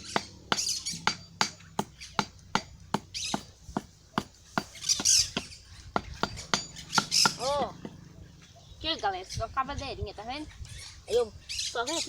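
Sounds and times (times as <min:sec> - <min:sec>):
trowel tapping on bricks: 0:00.1 - 0:07.9.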